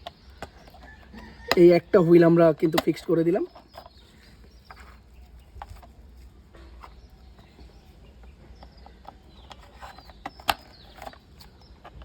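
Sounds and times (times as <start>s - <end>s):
plastic toy clicks and taps: 2.6s - 3.9s, 8.3s - 12.0s.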